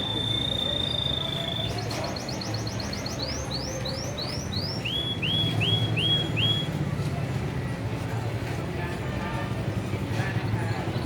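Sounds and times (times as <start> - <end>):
canary singing: 0.0 - 6.7.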